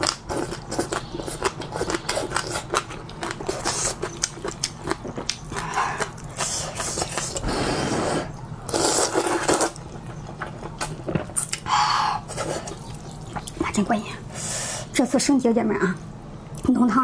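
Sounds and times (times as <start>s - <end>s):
wet chewing clicks: 0.0s - 7.5s
noodles being slurped: 0.0s - 13.8s.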